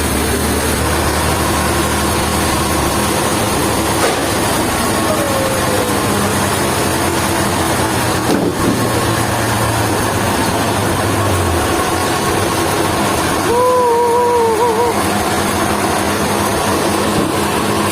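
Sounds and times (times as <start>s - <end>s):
heavy machinery running: 0.0s - 17.9s
wavering tone: 13.5s - 15.6s.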